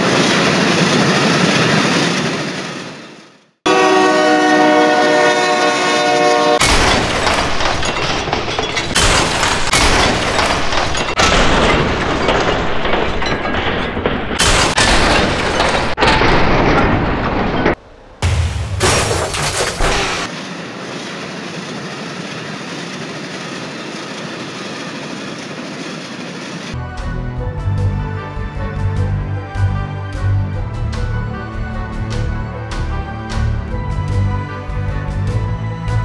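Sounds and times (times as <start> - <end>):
train horn: 3.6 - 6.6
train clattering on rails: 6.6 - 26.8.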